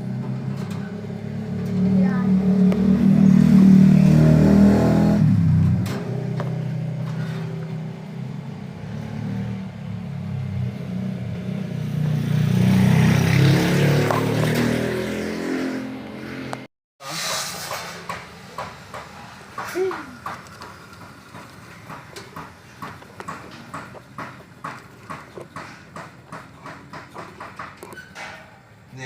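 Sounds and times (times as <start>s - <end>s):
vehicle engine revving: 0.0s - 16.7s.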